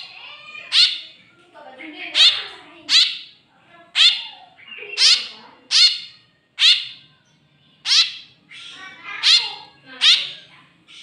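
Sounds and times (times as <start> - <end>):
bird chick begging calls: 4.0 - 7.1.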